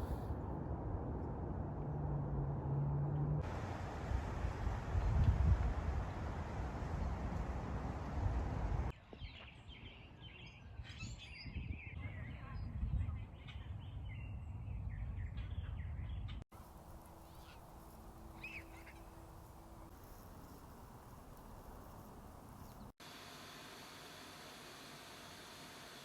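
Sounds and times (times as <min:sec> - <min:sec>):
low outdoor rumble: 0:00.0 - 0:08.9, 0:12.0 - 0:23.0
small birds chirping: 0:09.2 - 0:23.0.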